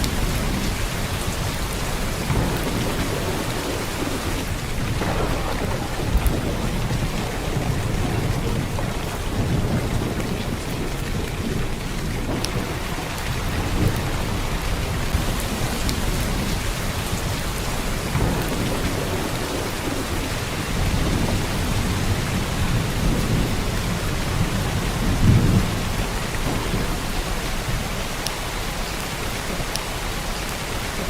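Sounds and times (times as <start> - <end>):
heavy rain pouring: 0.0 - 31.0
low rolling thunder: 0.0 - 31.0.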